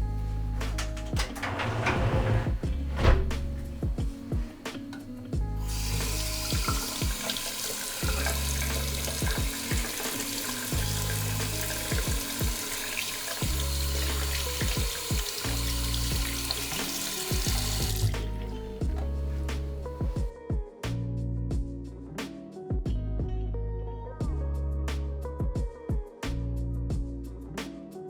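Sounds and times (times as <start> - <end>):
background music: 0.0 - 28.0
tap water running into sink: 3.0 - 20.2.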